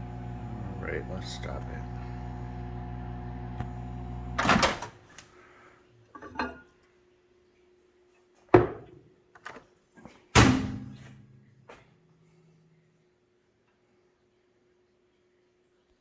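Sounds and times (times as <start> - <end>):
microwave oven humming: 0.0 - 4.8.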